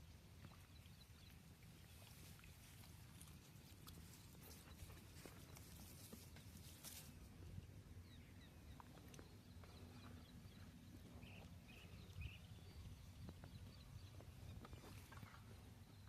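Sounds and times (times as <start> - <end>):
faint bird chirps: 8.0 - 16.0.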